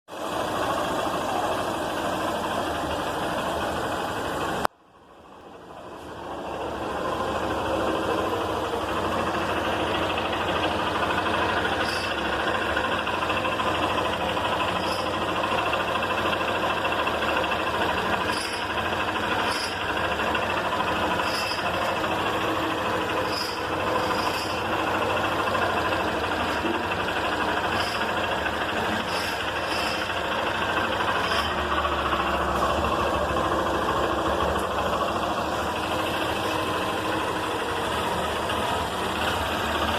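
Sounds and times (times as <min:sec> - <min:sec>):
motorcycle engine running: 0:06.0 - 0:39.9.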